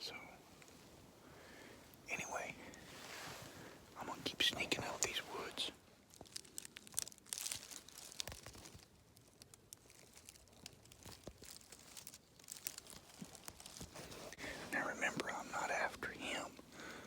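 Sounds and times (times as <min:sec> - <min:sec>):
dry leaves crackling underfoot: 0:04.4 - 0:15.4
twigs snapping: 0:06.1 - 0:14.0.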